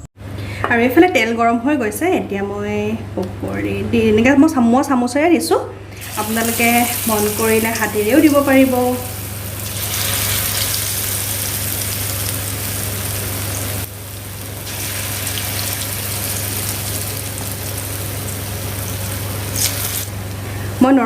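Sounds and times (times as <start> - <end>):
pakoras sizzling in hot oil: 6.0 - 20.2.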